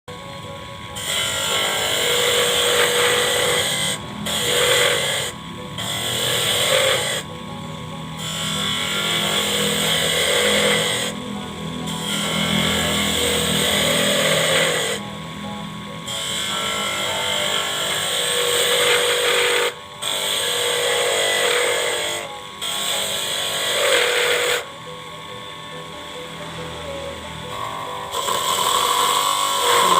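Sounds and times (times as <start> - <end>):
lathe running hum: 0.1 - 29.9
lathe tool cutting stock: 1.0 - 7.4, 8.2 - 15.0, 16.0 - 24.8, 27.5 - 29.9.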